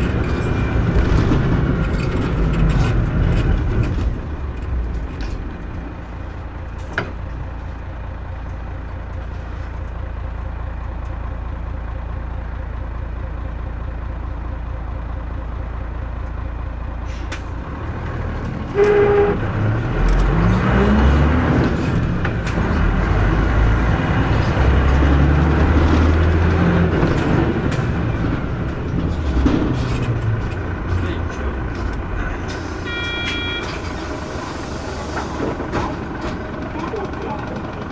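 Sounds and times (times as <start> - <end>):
bus engine: 0.0 - 37.9
short tone: 32.7 - 34.0.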